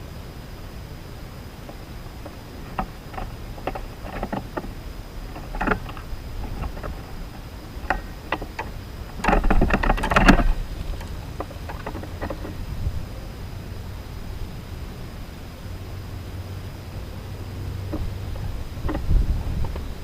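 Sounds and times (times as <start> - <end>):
steady outdoor hiss: 0.0 - 20.0
flurry of knocks and rattling: 7.8 - 12.6.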